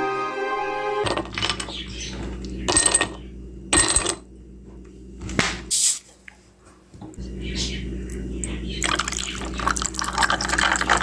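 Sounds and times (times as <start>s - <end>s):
soda bottle hiss: 5.7s - 6.0s.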